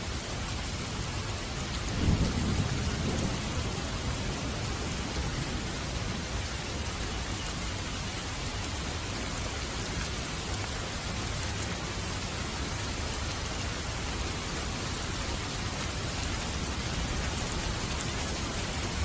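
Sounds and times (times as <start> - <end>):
heavy rain hiss: 0.0 - 19.0.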